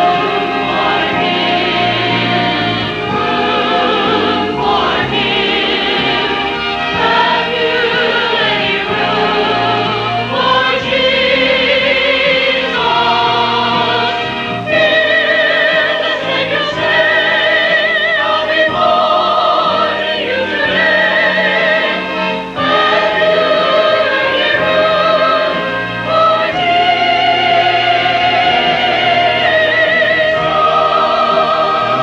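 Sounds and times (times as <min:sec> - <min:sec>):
choir singing: 0:00.0 - 0:32.0.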